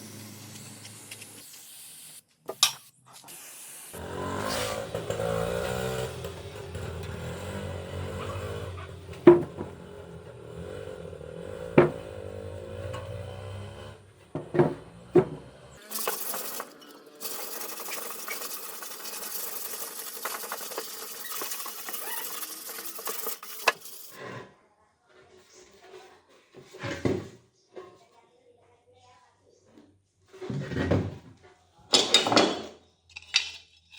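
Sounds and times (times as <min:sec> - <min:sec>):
hiss of air or spray: 0:00.0 - 0:04.6
motor running: 0:15.1 - 0:24.2.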